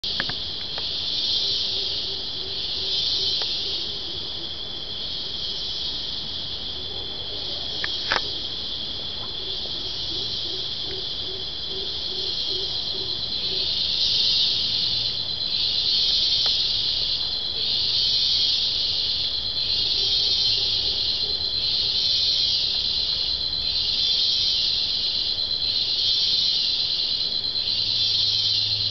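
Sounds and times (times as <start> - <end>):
low rapid insect trill: 0.0 - 28.9
steady high insect whine: 0.0 - 28.9
shrill insect buzzing: 9.9 - 28.9.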